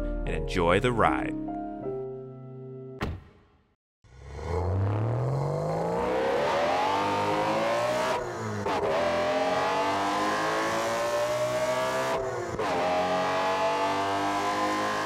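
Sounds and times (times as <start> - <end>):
car engine accelerating hard: 4.1 - 15.0.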